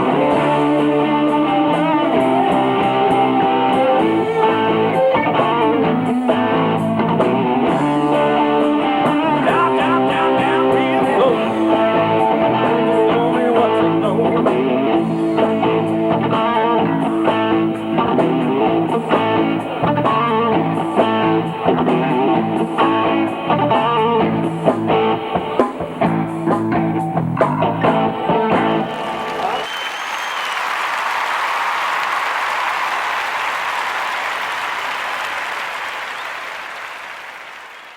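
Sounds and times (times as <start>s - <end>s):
strummed electric guitar chords: 0.0s - 29.4s
guitar-led rock music: 0.0s - 29.6s.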